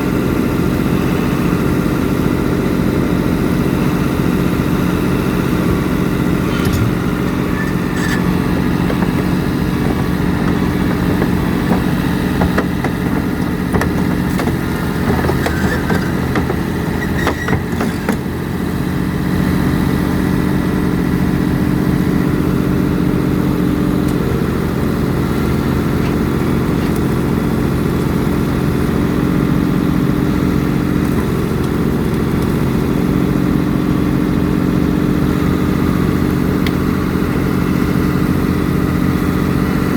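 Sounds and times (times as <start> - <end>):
heavy diesel engine running: 0.0 - 39.9
metallic knocks: 5.7 - 18.2.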